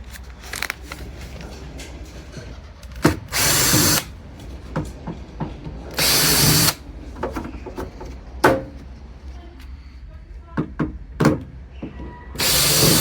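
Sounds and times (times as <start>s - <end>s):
power drill-driver bursts: 3.3s - 4.1s, 6.0s - 6.8s, 12.4s - 13.0s.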